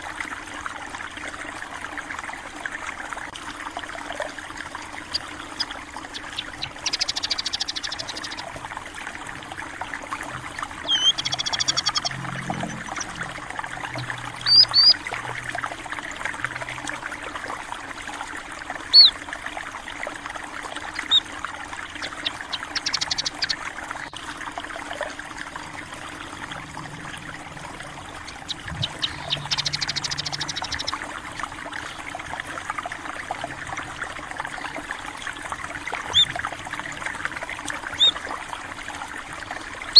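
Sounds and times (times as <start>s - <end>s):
stream trickling: 0.0s - 39.9s
small birds chirping: 4.9s - 8.5s, 10.8s - 13.4s, 14.0s - 15.3s, 18.9s - 19.2s, 21.0s - 21.3s, 21.9s - 23.6s, 27.5s - 31.2s, 36.0s - 36.4s, 37.9s - 38.2s.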